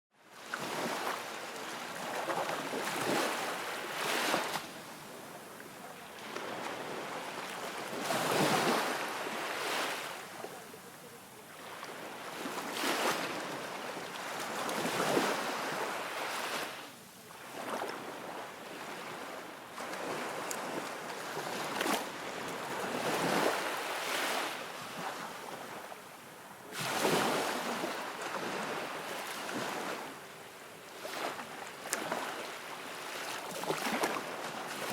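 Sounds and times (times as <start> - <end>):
wind: 0.1 - 34.9.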